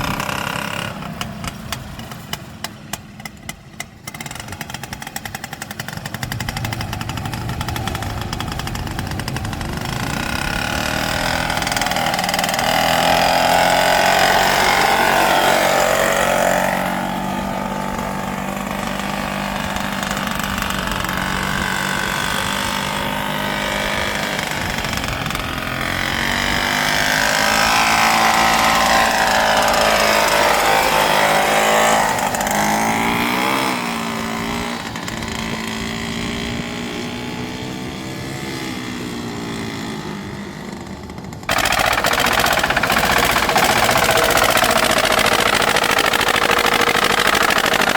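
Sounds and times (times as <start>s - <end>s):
tractor engine running: 0.0s - 36.6s, 40.8s - 47.9s.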